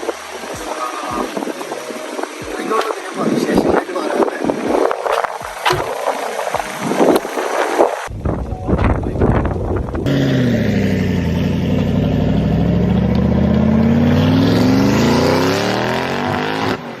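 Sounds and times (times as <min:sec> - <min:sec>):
knocking and rustling: 0:05.0 - 0:07.6.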